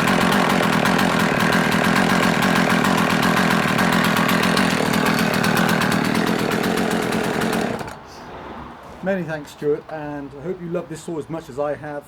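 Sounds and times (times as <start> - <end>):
chainsaw engine running: 0.0 - 8.0.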